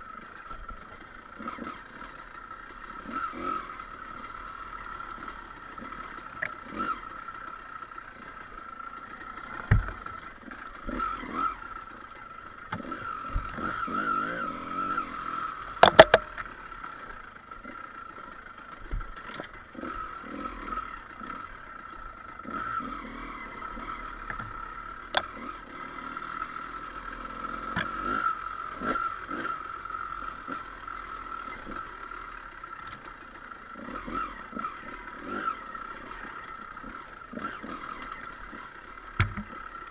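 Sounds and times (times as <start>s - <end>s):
motorcycle engine running: 0.0s - 39.9s
knocks and clatter: 15.8s - 16.4s.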